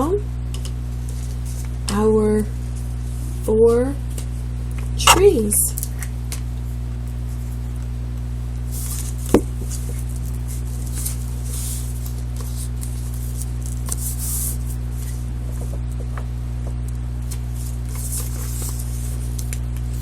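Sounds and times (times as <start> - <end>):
steady low hum: 0.0 - 20.0
paper handled: 8.7 - 16.0, 17.2 - 20.0.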